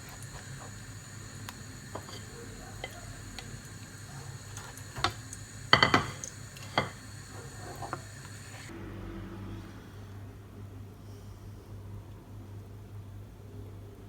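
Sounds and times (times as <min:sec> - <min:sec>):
faint background hum: 0:00.0 - 0:14.0
dishes and utensils clinking: 0:01.9 - 0:08.7.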